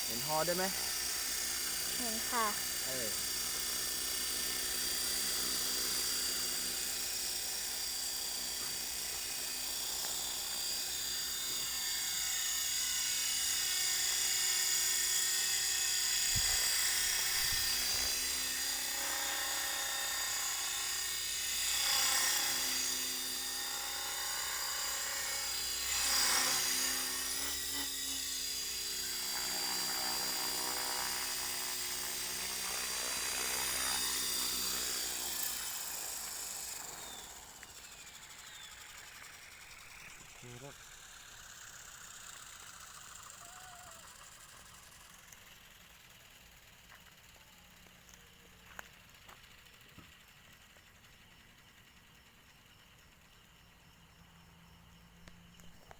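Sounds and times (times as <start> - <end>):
model helicopter motor whine: 0.0 - 55.9.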